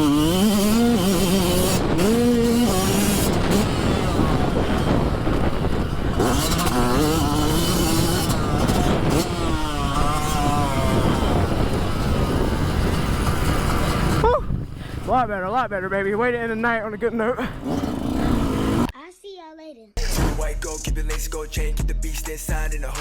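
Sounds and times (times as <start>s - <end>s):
dirt bike engine revving: 0.0s - 15.1s, 17.4s - 18.9s.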